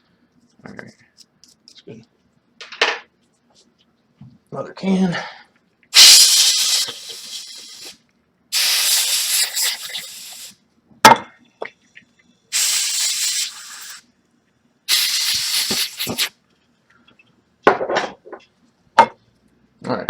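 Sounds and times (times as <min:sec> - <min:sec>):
compressed air hissing: 0:06.0 - 0:10.6, 0:12.5 - 0:14.0, 0:14.9 - 0:16.3.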